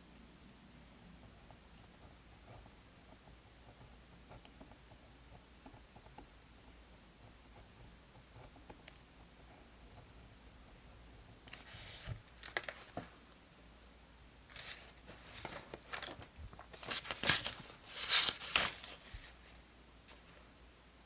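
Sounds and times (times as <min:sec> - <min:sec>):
paper rustling and tearing: 0:14.5 - 0:19.3.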